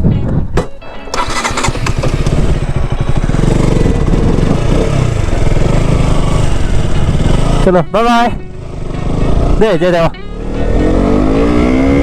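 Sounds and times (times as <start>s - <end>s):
motorcycle engine starting and running: 0.9s - 12.0s.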